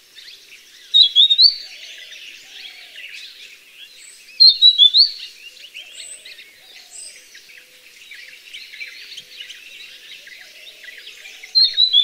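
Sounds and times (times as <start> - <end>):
faint bird chirping: 0.0 - 12.0
bird whistling song: 0.9 - 1.8, 4.4 - 5.3, 11.4 - 12.0.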